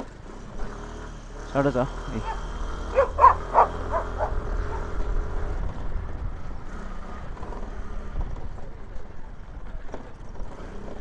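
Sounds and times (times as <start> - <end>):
scooter rumbling: 0.0 - 11.0
dog barking: 2.2 - 4.9.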